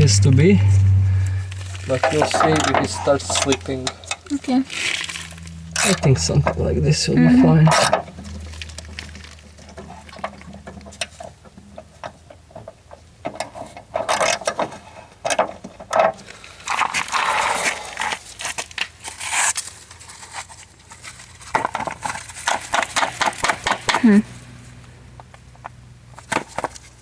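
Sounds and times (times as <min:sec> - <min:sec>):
scraping: 0:00.0 - 0:06.6, 0:16.2 - 0:24.4
tools clicking and knocking: 0:21.5 - 0:24.0.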